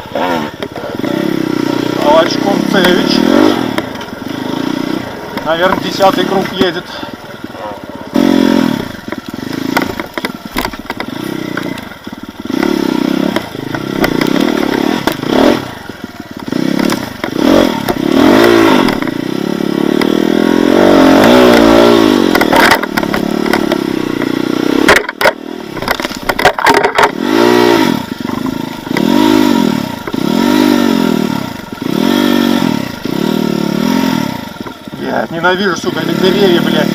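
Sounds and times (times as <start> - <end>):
motorcycle engine revving: 0.0 - 36.9
knocks and clatter: 9.0 - 15.4, 21.2 - 27.2.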